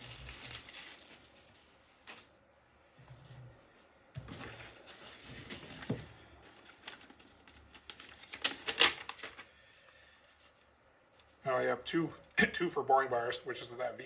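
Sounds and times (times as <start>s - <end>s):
rustling of packaging: 0.0s - 2.4s, 4.2s - 11.4s.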